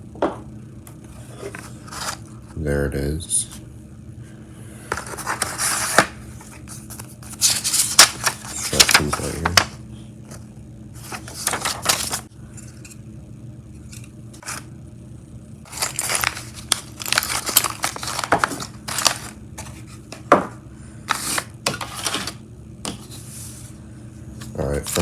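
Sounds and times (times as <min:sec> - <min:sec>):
packaging crinkling and rustling: 0:05.0 - 0:09.8, 0:11.0 - 0:12.3, 0:15.6 - 0:20.5, 0:21.1 - 0:23.2, 0:24.4 - 0:25.0.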